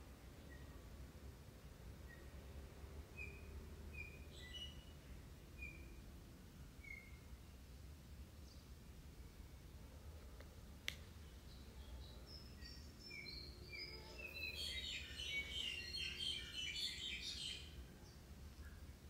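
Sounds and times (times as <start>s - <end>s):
birds chirping: 11.2s - 18.9s.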